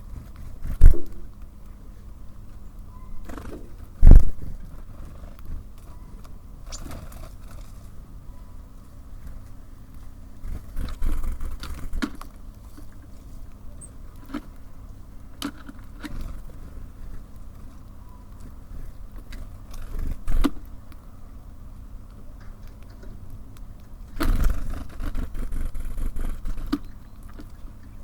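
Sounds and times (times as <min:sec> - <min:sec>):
birds pecking at feeder: 0:09.2 - 0:28.0.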